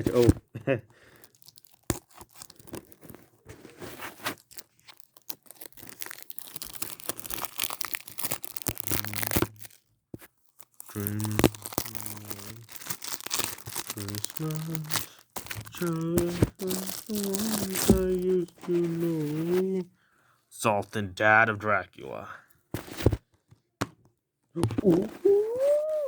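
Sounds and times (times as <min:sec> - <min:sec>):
plastic shrink-wrap tearing: 0:01.1 - 0:19.8.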